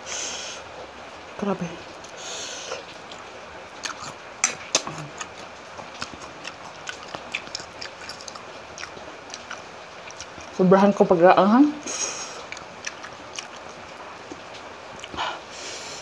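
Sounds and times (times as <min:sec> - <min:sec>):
chewing with open mouth: 0:02.0 - 0:10.9, 0:11.8 - 0:15.3.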